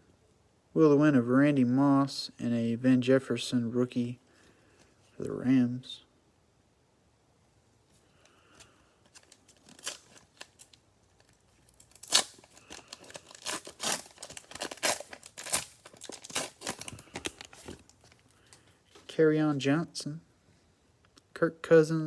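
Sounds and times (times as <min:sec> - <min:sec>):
cellophane wrapper crackling: 0:08.2 - 0:19.0.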